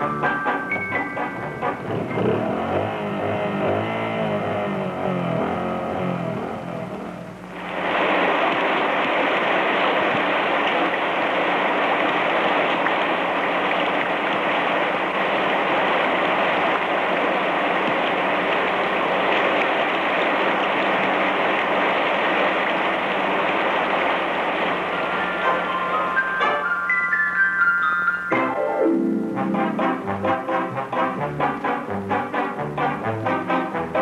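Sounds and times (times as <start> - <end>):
constant low hum: 1.4 - 26.6
many motorcycle engines running: 1.8 - 7.2.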